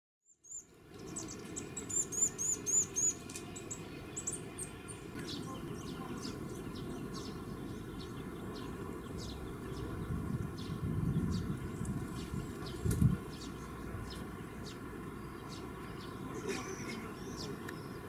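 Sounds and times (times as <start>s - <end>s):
small birds chirping: 0.2s - 18.0s.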